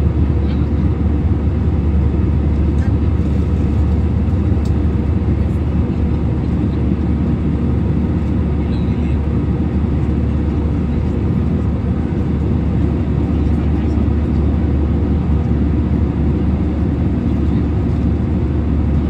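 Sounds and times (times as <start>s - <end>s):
airliner engine drone in cabin: 0.0s - 19.0s.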